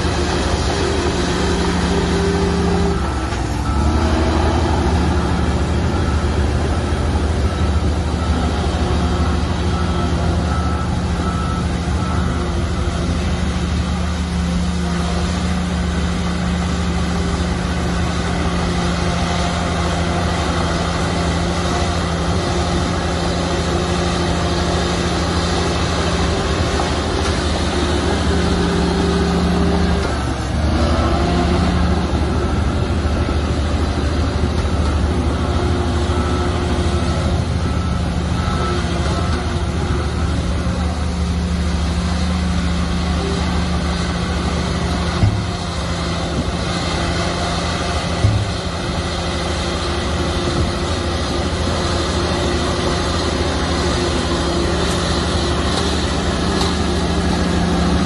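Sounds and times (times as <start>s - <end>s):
reversing alarm beeping: 0.0s - 45.8s
bulldozer diesel engine running: 0.0s - 58.0s.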